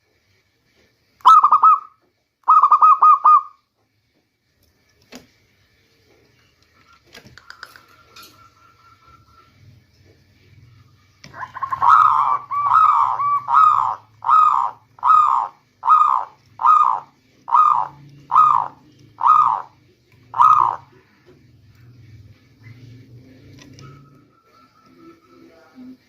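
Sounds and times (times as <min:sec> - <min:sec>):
dove cooing: 0:01.2 - 0:01.9, 0:02.5 - 0:03.6, 0:11.3 - 0:21.2.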